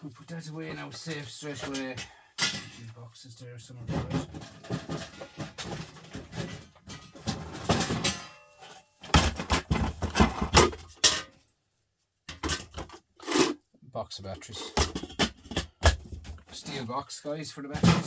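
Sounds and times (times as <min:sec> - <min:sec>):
hard objects clattering on workbench: 0:03.9 - 0:11.3, 0:12.3 - 0:13.6, 0:14.6 - 0:16.6, 0:17.7 - 0:18.0.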